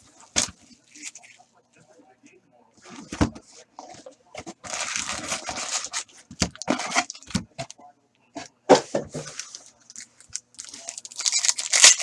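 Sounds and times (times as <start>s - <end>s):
plastic wrapping ripping: 4.6s - 7.3s, 9.2s - 12.0s
plastic wrapping crinkling: 4.6s - 7.4s, 9.1s - 12.0s.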